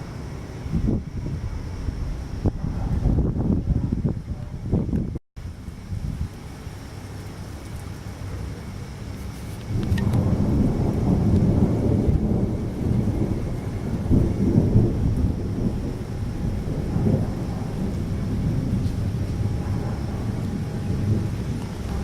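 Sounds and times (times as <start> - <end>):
thunder crack: 0.0 - 5.2, 9.6 - 22.0
thunder rumbling: 0.0 - 22.0.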